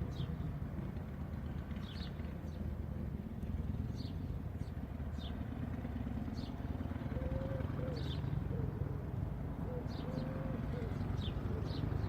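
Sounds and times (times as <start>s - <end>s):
dove cooing: 7.0s - 12.0s.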